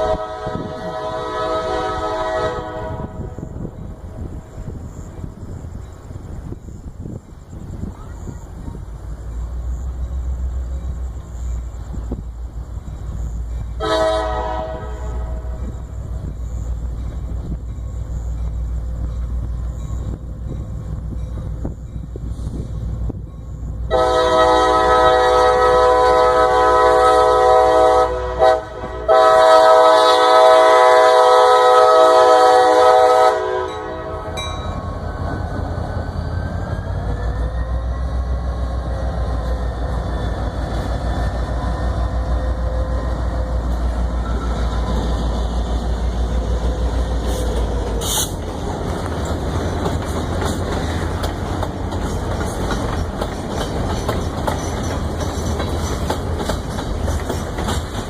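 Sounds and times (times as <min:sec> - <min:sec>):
train air horn: 0:00.0 - 0:03.4, 0:13.8 - 0:15.7, 0:23.9 - 0:34.4, 0:47.2 - 0:48.4
freight cars rolling on rails: 0:00.0 - 0:58.0.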